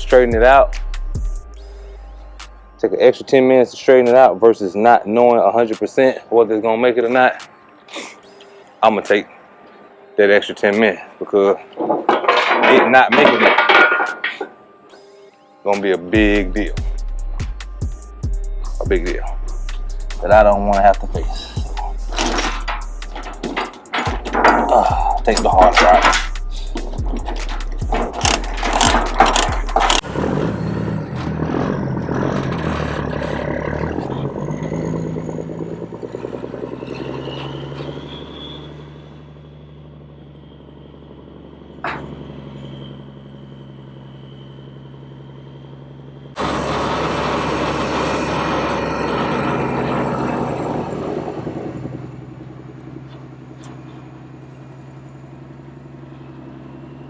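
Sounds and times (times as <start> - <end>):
truck diesel engine running: 0.0 - 3.0, 16.1 - 57.0
faint rising whine: 34.3 - 57.0.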